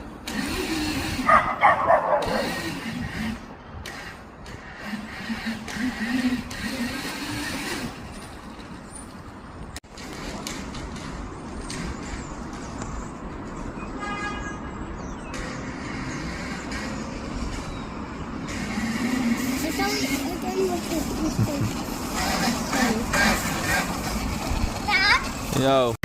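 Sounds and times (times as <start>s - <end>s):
electric dirt bike running: 0.0s - 8.9s, 15.3s - 26.0s.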